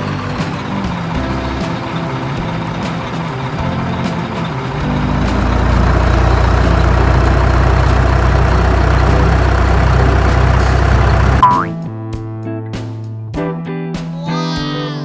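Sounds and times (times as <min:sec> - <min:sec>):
heavy truck engine rumbling: 0:00.0 - 0:11.6
short rising tone: 0:04.9 - 0:11.8.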